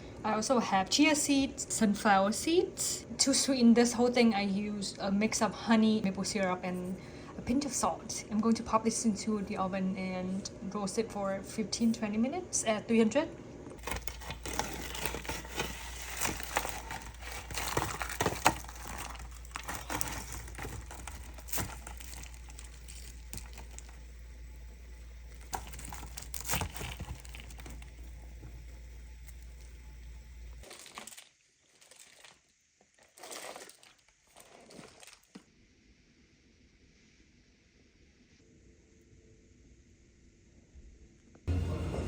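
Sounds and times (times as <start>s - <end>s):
paper crinkling and rustling: 13.8s - 31.2s.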